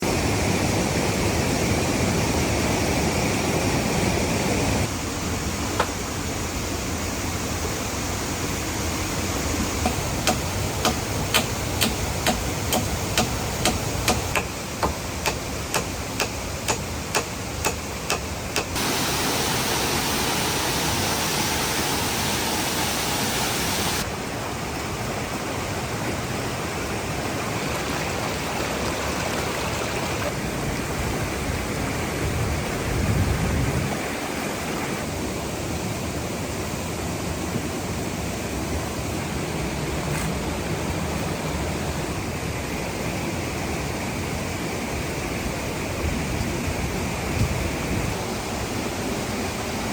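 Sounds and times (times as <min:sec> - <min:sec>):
waterfall rushing: 0:00.0 - 0:32.9
sharp knocks: 0:09.8 - 0:18.8.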